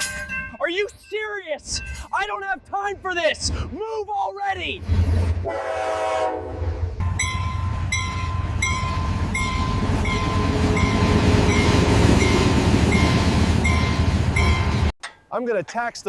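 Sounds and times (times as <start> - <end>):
railroad crossing bell: 0.0 - 2.1, 7.0 - 14.9
passing train rumble: 4.7 - 14.9
train horn: 5.1 - 7.0.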